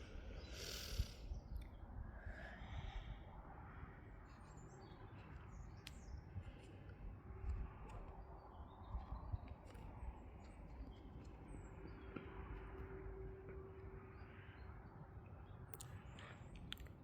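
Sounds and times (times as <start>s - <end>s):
faint bird chirps: 0.0s - 3.3s.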